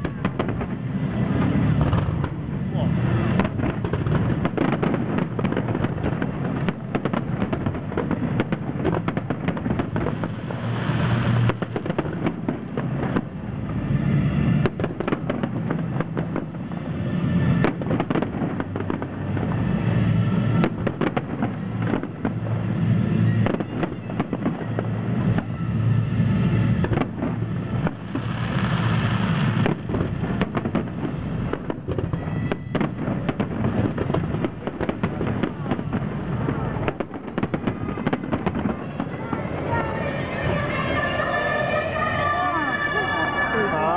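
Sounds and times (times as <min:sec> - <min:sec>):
firework bangs and booms: 0:00.0 - 0:43.9
firework hiss and crackle: 0:00.0 - 0:43.9.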